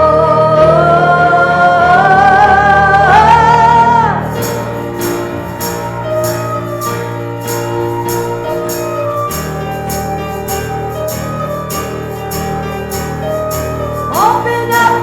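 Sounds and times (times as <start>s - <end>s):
high jingling percussion: 4.2s - 15.0s.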